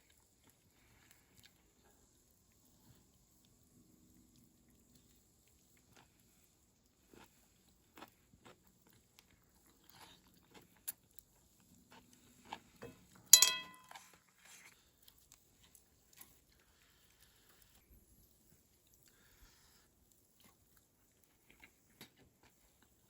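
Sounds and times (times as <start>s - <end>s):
chewing crunches: 5.5s - 12.8s
loud short ringing sound: 13.4s - 13.9s.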